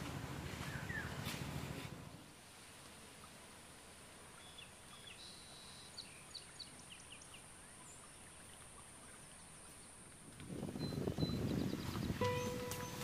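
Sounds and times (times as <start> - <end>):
small birds chirping: 4.3 - 10.0, 10.8 - 13.0
steady high hiss: 12.2 - 13.0.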